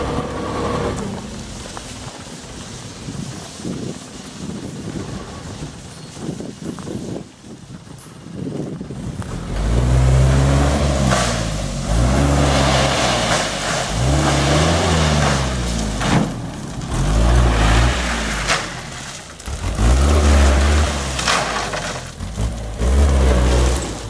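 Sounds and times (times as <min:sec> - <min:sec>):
truck engine revving: 0:00.0 - 0:02.9, 0:09.0 - 0:24.0.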